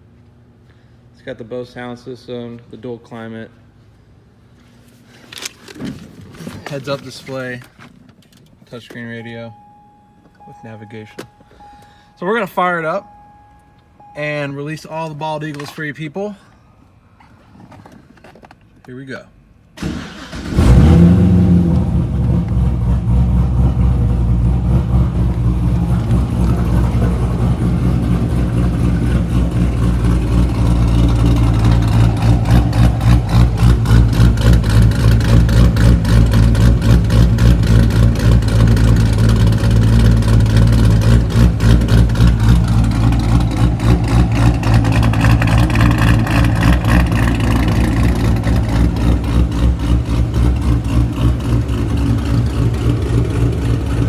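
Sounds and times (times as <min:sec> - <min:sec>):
car engine starting: 0:19.6 - 0:54.0
car engine idling with pulsing lope: 0:19.8 - 0:54.0.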